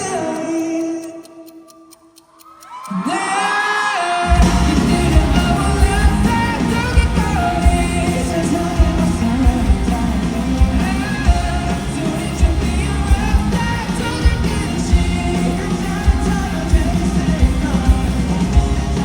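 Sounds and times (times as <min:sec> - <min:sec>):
person singing: 0:00.0 - 0:19.0
driving drum beat: 0:04.3 - 0:19.0
live rock band playing: 0:04.3 - 0:19.0.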